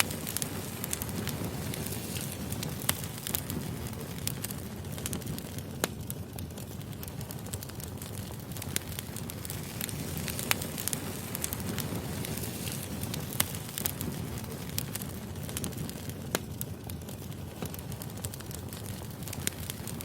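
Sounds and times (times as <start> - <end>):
firewood crackling and popping: 0.0 - 20.0.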